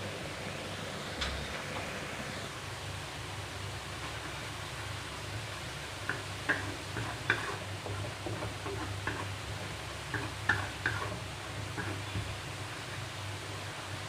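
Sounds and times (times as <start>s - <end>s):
chilli paste sizzling in oil: 2.6s - 14.0s
spatula clinking and scraping pan: 6.1s - 9.3s, 10.1s - 12.2s.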